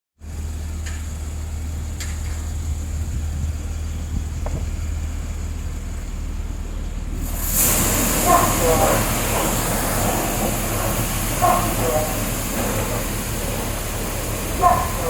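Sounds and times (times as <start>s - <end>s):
low mechanical hum: 0.2s - 15.0s.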